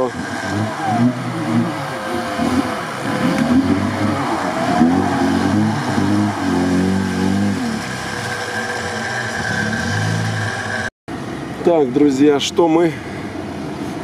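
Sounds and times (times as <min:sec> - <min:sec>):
car engine revving under load: 0:00.0 - 0:10.9.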